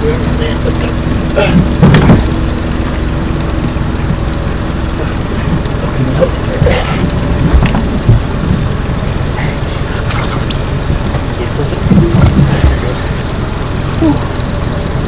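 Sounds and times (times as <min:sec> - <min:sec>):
boat motor idling: 0:00.0 - 0:15.0
knocks from boat: 0:01.5 - 0:02.3.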